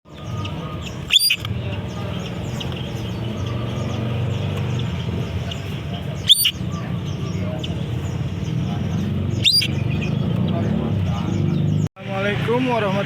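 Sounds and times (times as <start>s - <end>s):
low rumble of traffic: 0.1s - 13.0s
songbirds chirping: 0.1s - 13.0s
loud sharp bird call: 0.2s - 10.3s.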